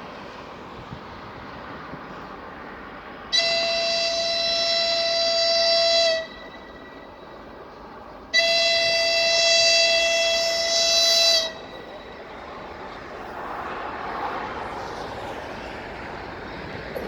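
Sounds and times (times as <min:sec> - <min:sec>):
locomotive horn blasts: 0:03.3 - 0:12.3.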